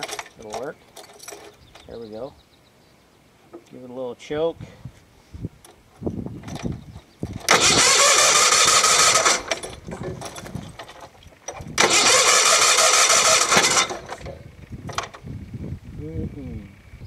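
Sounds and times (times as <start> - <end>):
electric starter cranking engine: 7.4 - 10.9, 11.5 - 15.2.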